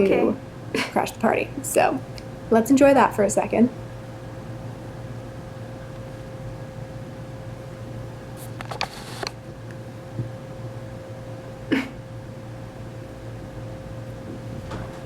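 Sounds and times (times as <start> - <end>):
steady room hum: 0.0 - 15.0
paper rustles and taps: 8.6 - 9.4.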